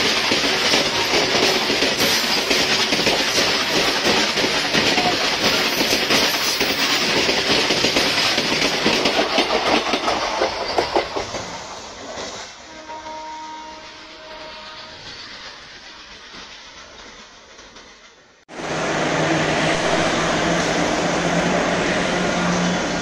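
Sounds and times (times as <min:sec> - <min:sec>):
wheels clattering over rail joints: 0:00.0 - 0:12.5
freight train rumbling: 0:00.0 - 0:23.0.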